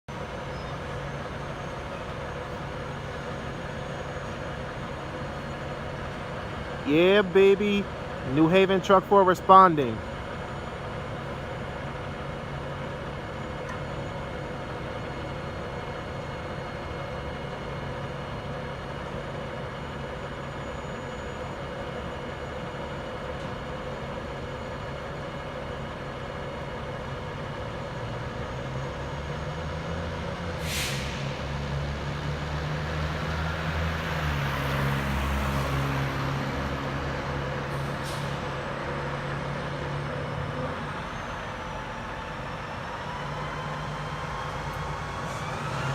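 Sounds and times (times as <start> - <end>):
diesel truck engine revving: 27.2 - 45.9
air brake hisses: 30.6 - 31.4, 37.8 - 38.5.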